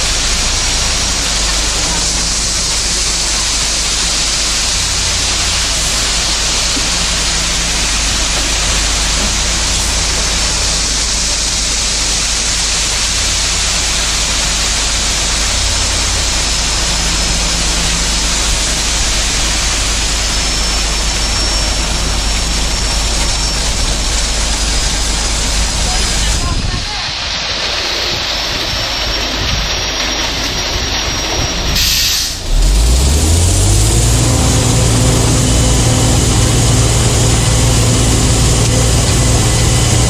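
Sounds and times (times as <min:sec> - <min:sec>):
engine running: 0:00.0 - 0:40.0
strong even hiss: 0:00.0 - 0:40.0.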